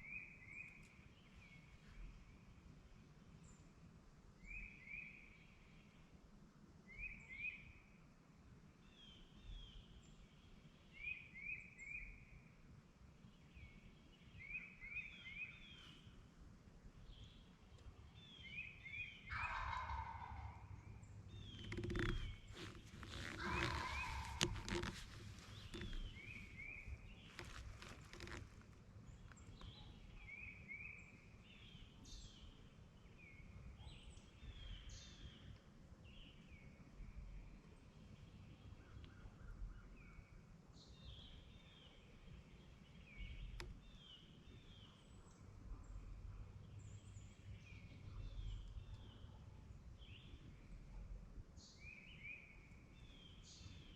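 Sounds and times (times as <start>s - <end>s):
turkey gobbling: 19.3s - 20.7s, 22.6s - 25.0s
rustling and handling noise: 21.6s - 29.6s.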